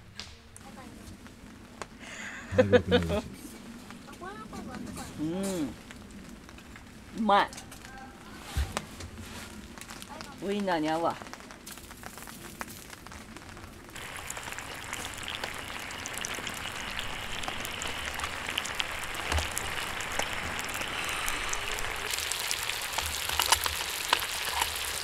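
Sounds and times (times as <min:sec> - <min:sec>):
food sizzling in a skillet: 0:14.0 - 0:25.0.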